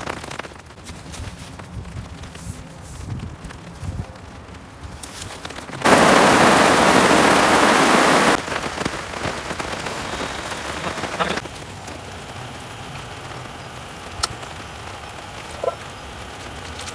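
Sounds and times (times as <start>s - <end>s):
heavy rain on a tarp: 0.0s - 16.9s.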